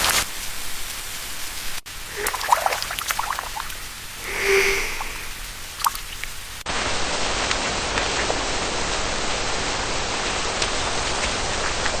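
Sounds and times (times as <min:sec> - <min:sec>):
steady rain hiss: 0:00.0 - 0:12.0
water drips: 0:01.9 - 0:06.6.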